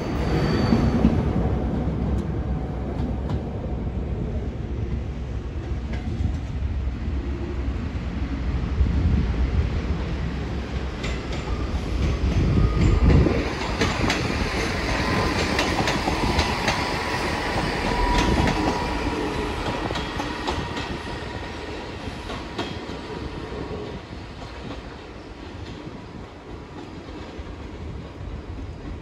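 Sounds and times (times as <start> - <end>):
train low rumble: 0.0 - 29.0
train wheels clicking on track: 10.6 - 29.0.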